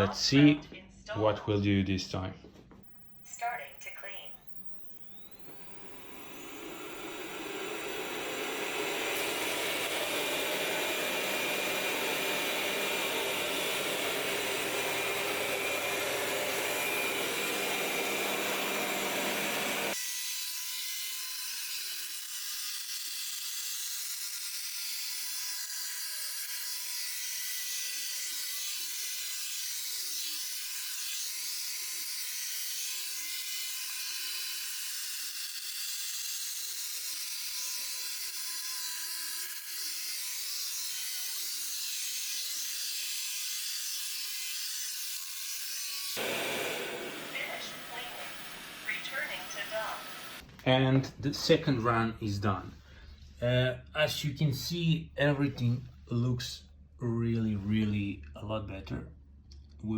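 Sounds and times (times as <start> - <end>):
thin steady whir: 2.8 - 20.0, 46.2 - 50.5
robot vacuum suction fan running: 5.1 - 20.0, 46.2 - 50.5.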